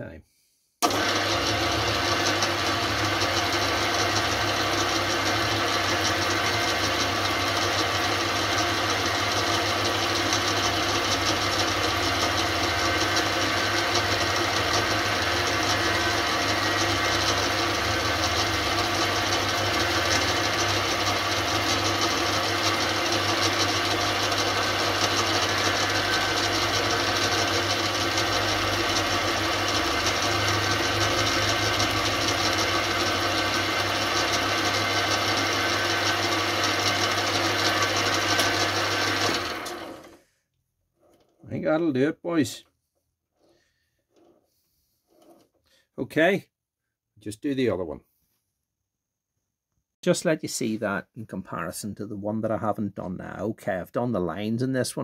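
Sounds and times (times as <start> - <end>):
metalworking lathe running: 0.8 - 40.2.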